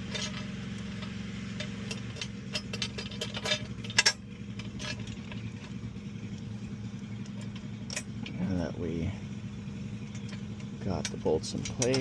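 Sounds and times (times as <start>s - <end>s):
metal parts clinking: 0.0s - 5.8s, 7.2s - 8.4s, 10.0s - 12.0s
steady low hum: 0.0s - 12.0s
sharp metal clicks: 0.1s - 8.4s, 9.9s - 12.0s.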